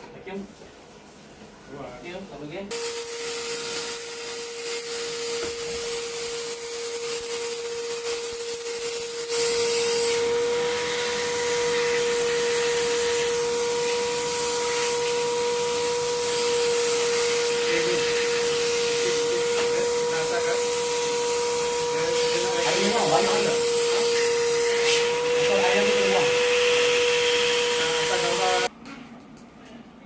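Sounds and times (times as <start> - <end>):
high whine: 2.7 - 9.6
vacuum cleaner running: 2.7 - 9.8.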